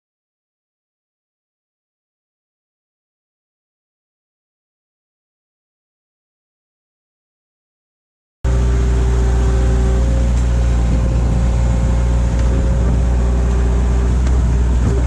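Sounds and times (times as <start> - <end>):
loader engine droning: 8.5 - 15.0.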